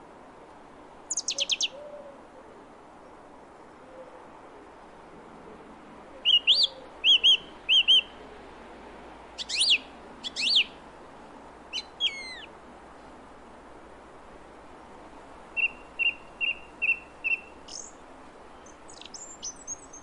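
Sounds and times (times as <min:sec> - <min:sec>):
faint background hiss: 0:00.0 - 0:20.0
songbird singing: 0:01.1 - 0:02.2, 0:06.1 - 0:08.4, 0:09.3 - 0:10.9, 0:11.6 - 0:12.6, 0:15.4 - 0:20.0.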